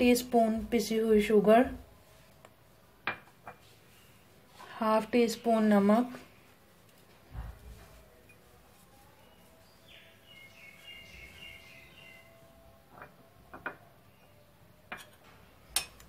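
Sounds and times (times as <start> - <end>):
faint birds chirping: 3.5 - 14.8.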